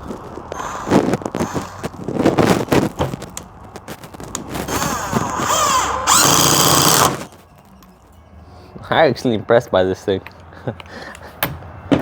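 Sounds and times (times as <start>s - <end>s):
impact driver motor whine: 4.7s - 7.3s.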